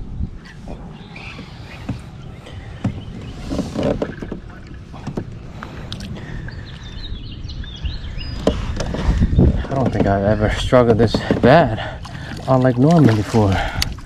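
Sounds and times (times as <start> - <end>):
knocks and clicks of gear: 2.8 - 5.4.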